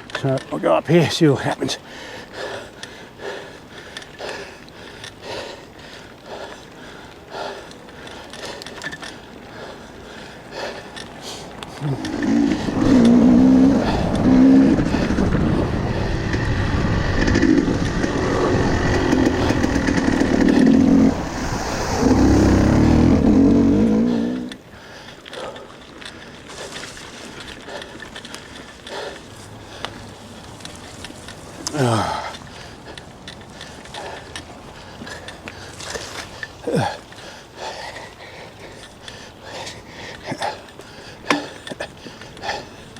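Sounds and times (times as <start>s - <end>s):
rattling and clicking: 11.8s - 21.4s
motor running hard in surges: 11.8s - 24.6s.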